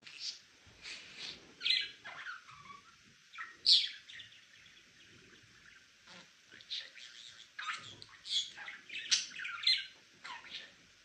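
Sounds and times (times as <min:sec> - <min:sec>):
budgerigar chirping: 0:01.6 - 0:04.6, 0:05.6 - 0:10.8.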